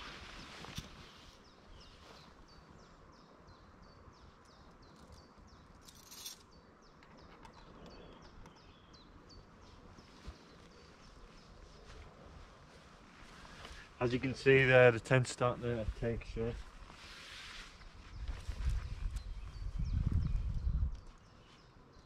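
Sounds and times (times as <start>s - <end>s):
short rustle: 0.0s - 2.4s, 15.8s - 19.3s
small bird chirping: 18.0s - 22.0s.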